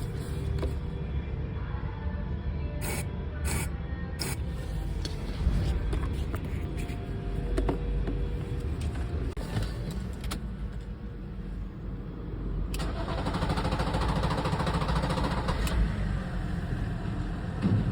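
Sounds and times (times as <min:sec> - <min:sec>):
diesel engine cranking and starting: 0:12.6 - 0:17.9
diesel engine clatter: 0:12.7 - 0:17.9.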